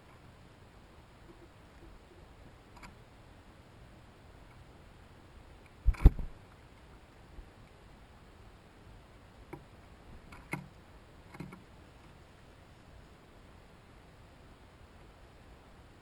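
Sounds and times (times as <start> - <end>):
sharp clicks and knocks: 5.7 - 6.4, 10.3 - 11.7.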